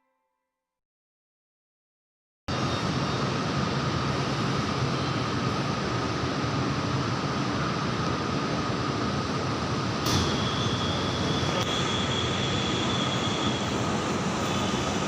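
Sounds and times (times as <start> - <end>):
electric train rumbling: 2.5 - 15.0
train whine: 2.5 - 15.0
click: 11.6 - 11.8.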